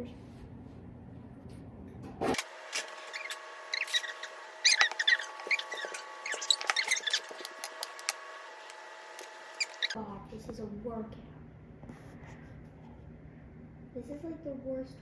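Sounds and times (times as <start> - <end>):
plastic piping bag squeaking: 2.8 - 8.2, 9.2 - 10.0.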